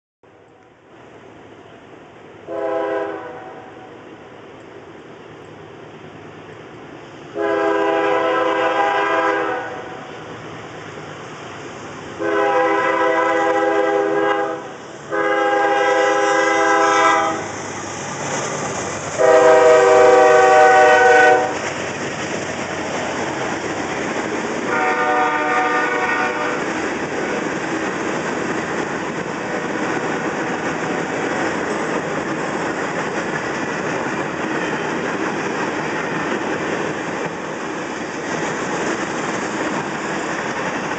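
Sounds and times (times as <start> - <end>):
locomotive air horn blasts: 2.5 - 3.9, 7.3 - 10.1, 12.2 - 17.5, 19.2 - 21.6, 24.7 - 26.6
freight cars rumbling past: 6.2 - 40.9.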